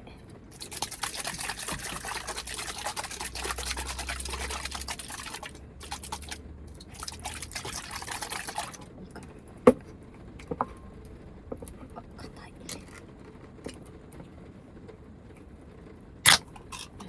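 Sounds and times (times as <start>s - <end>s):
jelly drink sloshing when shaken: 0.5s - 9.8s.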